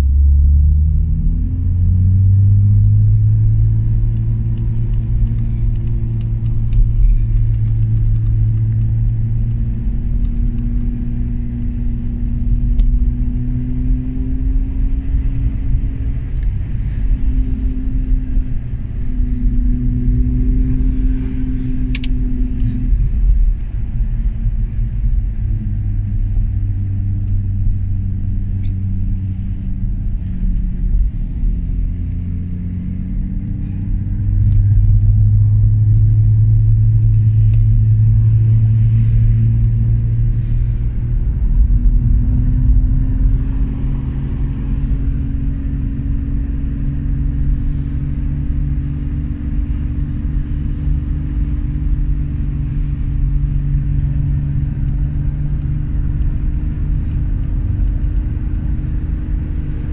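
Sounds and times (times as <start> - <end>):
car engine pulling uphill: 0.0 - 59.9
road noise rumble: 0.0 - 59.9.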